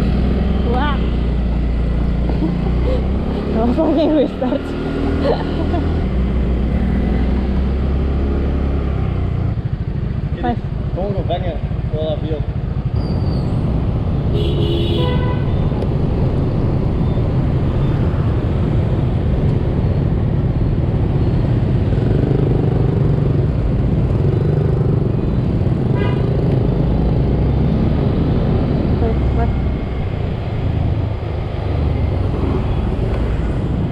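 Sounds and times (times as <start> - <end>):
wind: 0.0 - 33.9
vehicle horn toot: 14.3 - 15.6, 26.0 - 26.3.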